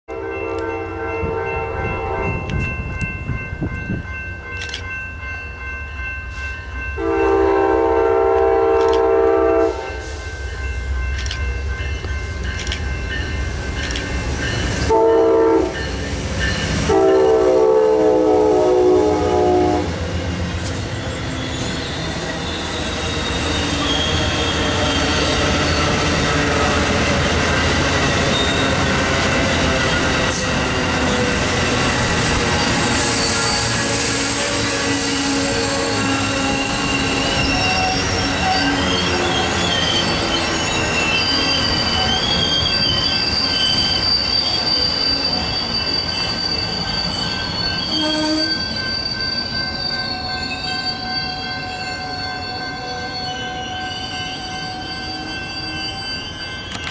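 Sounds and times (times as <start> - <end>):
train horn blasts: 0.1 - 2.5, 7.0 - 10.2, 14.9 - 15.8, 16.8 - 20.0, 33.0 - 38.7, 47.9 - 48.6
diesel locomotives passing: 0.1 - 56.9
wheels rumbling on rails: 0.6 - 4.8, 7.3 - 17.0, 19.4 - 49.8.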